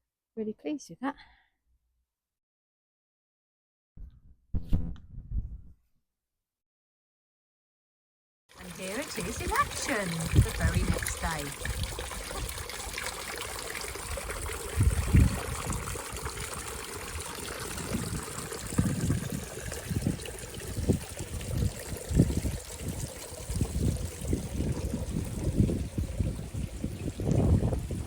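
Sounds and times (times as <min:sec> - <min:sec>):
low rumbling bumps: 0:04.0 - 0:05.8
water trickling down stream: 0:08.5 - 0:28.0.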